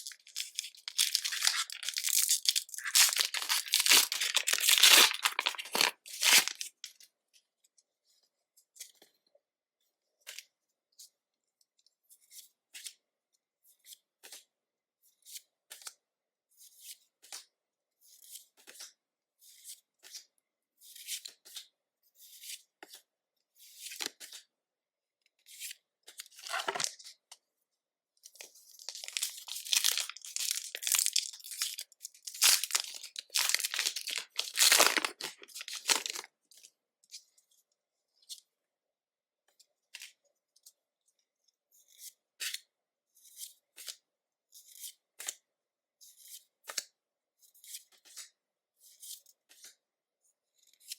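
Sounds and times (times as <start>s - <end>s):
foil wrapper crinkling and tearing: 0.0s - 6.7s, 26.5s - 26.9s, 28.8s - 36.6s.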